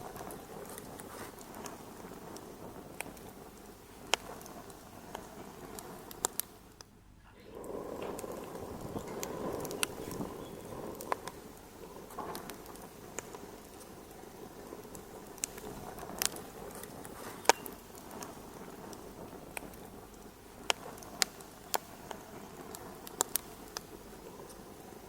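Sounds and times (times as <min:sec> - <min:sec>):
fire crackling: 0:00.0 - 0:25.0
sharp pops and snaps: 0:00.0 - 0:25.0.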